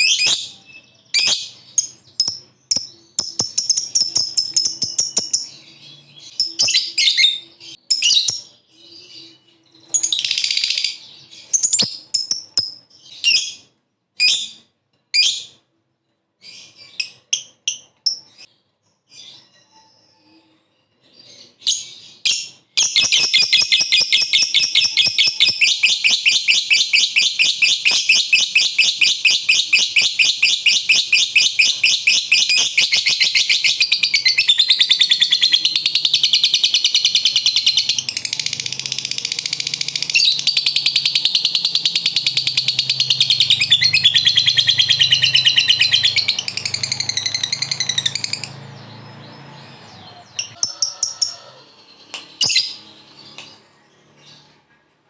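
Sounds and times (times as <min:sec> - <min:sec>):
lovebird chattering high chirps: 0:01.2 - 0:08.5, 0:22.3 - 0:48.6.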